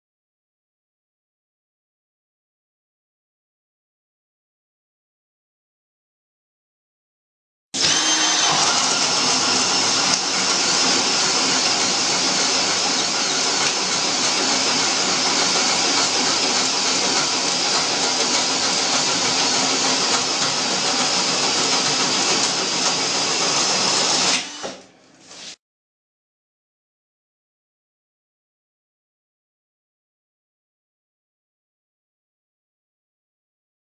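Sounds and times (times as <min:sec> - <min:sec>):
cordless drill running: 0:07.8 - 0:24.9.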